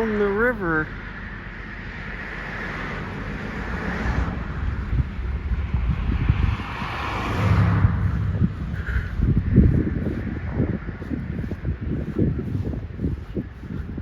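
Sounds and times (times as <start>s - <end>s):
vehicle passing by: 0.6s - 14.0s
wind on microphone: 3.0s - 14.0s.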